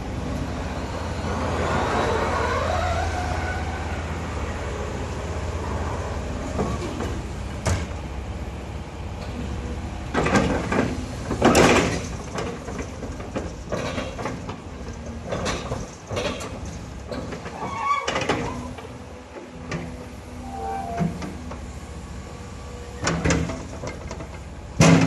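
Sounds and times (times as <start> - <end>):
excavator engine humming: 0.0 - 25.0
metallic squeal: 2.0 - 4.2, 17.5 - 18.7, 20.4 - 21.2.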